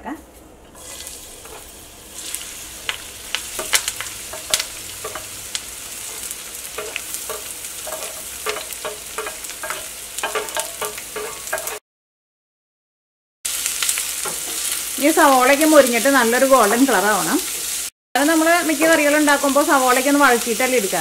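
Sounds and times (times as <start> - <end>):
vegetables sizzling in hot oil: 0.8 - 11.8, 13.5 - 21.0
spatula scraping and clinking pan: 2.3 - 11.8.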